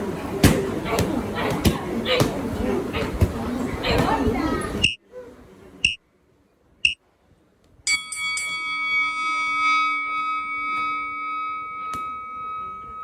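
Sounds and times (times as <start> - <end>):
bell ringing: 7.9 - 13.0.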